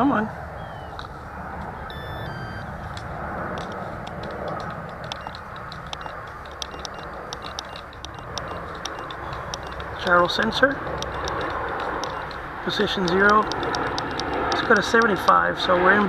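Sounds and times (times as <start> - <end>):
wind on microphone: 0.0 - 16.0
short electronic beeps: 1.8 - 2.9, 5.0 - 10.2, 11.0 - 11.4, 12.0 - 12.4
key clicks: 1.9 - 15.1.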